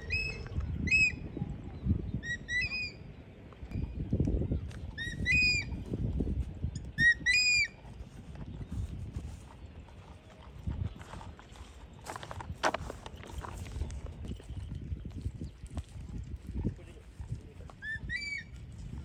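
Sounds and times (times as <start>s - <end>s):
bird shrill calls: 2.2s - 3.1s, 17.8s - 18.5s
footsteps in grass: 7.7s - 19.0s.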